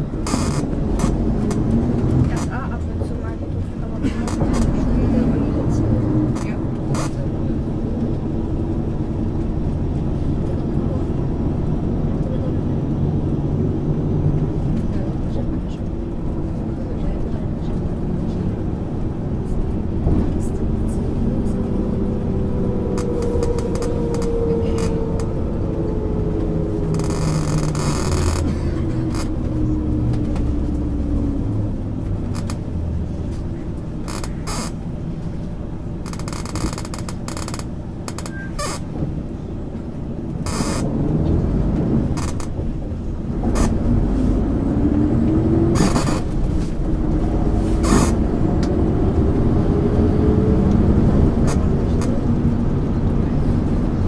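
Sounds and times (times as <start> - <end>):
bus engine running: 0.0 - 54.0.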